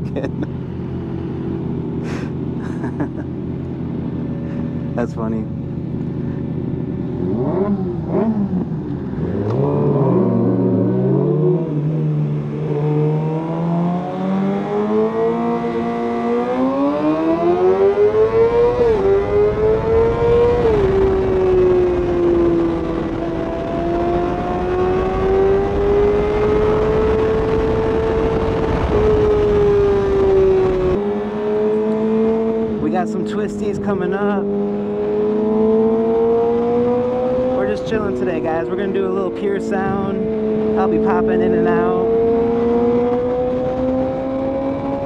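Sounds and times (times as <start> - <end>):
motorcycle engine revving: 0.0 - 45.0
wind noise on microphone: 18.5 - 31.0, 39.8 - 45.0.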